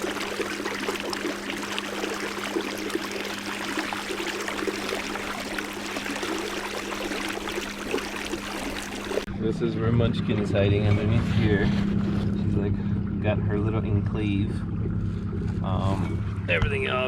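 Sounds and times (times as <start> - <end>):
water splashing along a hull: 0.0 - 9.3, 10.1 - 17.0.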